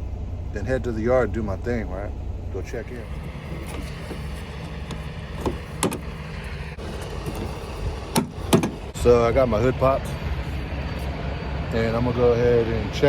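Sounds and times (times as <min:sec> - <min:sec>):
truck engine idling: 0:00.0 - 0:13.0
sharp clicks and knocks: 0:02.9 - 0:09.0.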